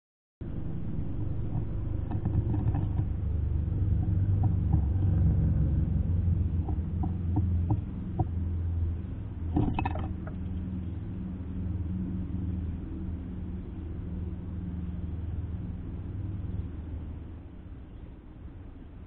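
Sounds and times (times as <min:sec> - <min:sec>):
low steady rumble: 0:00.4 - 0:19.0.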